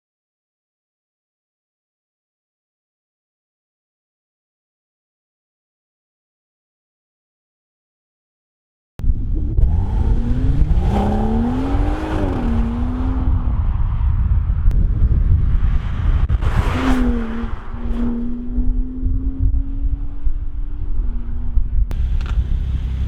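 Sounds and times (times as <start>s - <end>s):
car engine exhaust revving: 9.1s - 14.6s, 16.3s - 23.0s.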